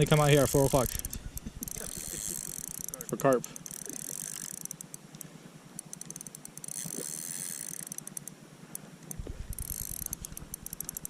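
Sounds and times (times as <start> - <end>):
fishing reel drag clicking: 0.0 - 11.0
low rumble: 9.1 - 10.5.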